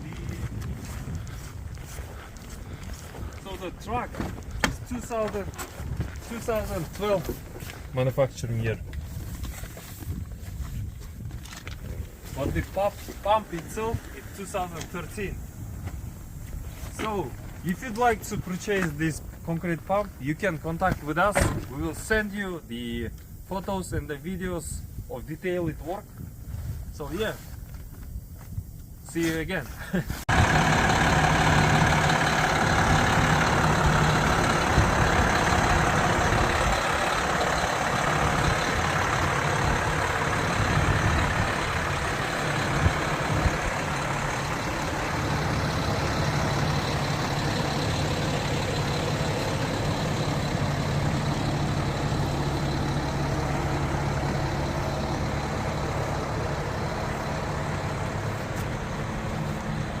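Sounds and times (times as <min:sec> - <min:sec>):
diesel engine hum: 0:00.0 - 0:27.4, 0:29.4 - 1:00.0
machinery noise: 0:30.3 - 1:00.0.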